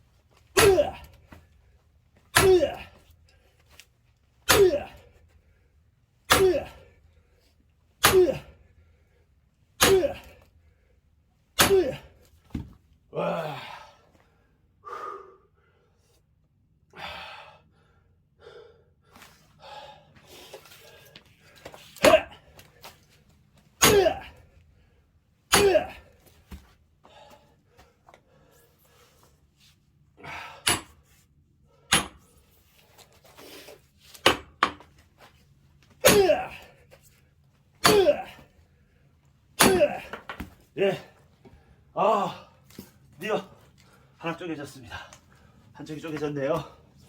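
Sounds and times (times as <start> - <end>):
axe striking log: 0.6 - 1.1, 2.3 - 2.9, 4.5 - 5.0, 6.3 - 6.7, 8.0 - 8.4, 9.8 - 10.3, 11.6 - 12.7, 22.0 - 22.3, 23.8 - 24.3, 25.5 - 26.6, 30.6 - 31.0, 31.9 - 32.2, 34.2 - 34.8, 36.0 - 36.6, 37.8 - 38.3, 39.6 - 40.6
man yelling: 2.4 - 2.9
man breathing hard: 13.2 - 16.2, 16.9 - 22.8, 27.0 - 29.4, 30.2 - 30.9.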